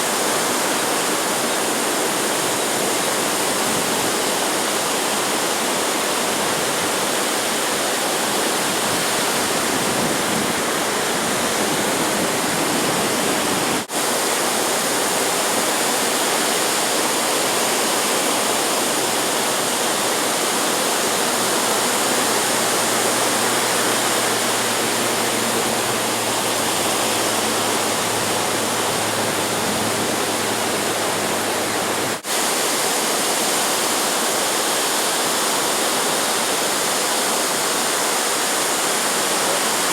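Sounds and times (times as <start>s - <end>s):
ocean surf roar: 0.0s - 39.9s
wind on microphone: 8.1s - 14.2s.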